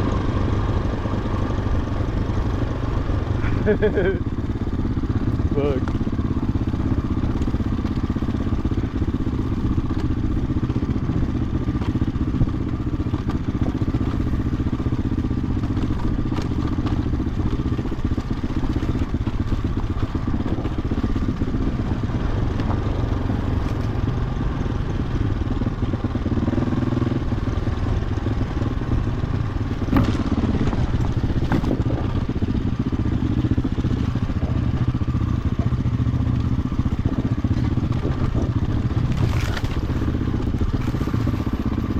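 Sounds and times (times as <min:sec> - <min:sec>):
dirt bike engine running: 0:00.0 - 0:41.9
bike knocking and clattering: 0:03.4 - 0:22.9, 0:29.6 - 0:41.9.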